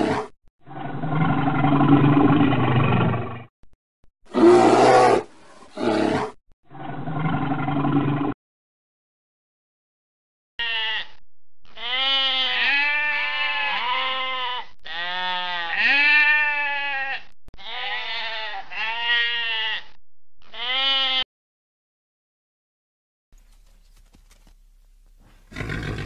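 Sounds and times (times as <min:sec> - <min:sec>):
sheep bleating: 0:10.6 - 0:21.3.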